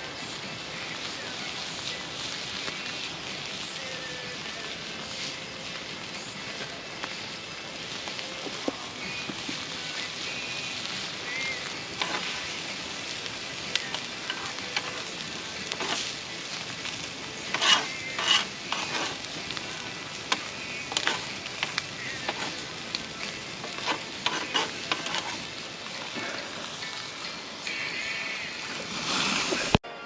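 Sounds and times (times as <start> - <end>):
food sizzling in a pan: 0.0 - 29.8
utensil scraping a pan: 12.0 - 12.6, 13.8 - 15.1, 15.7 - 16.2, 17.4 - 22.6, 23.6 - 26.5.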